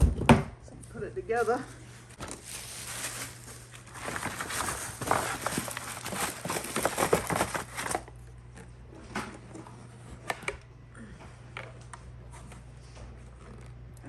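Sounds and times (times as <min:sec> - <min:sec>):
packaging crinkling: 0:01.4 - 0:08.3.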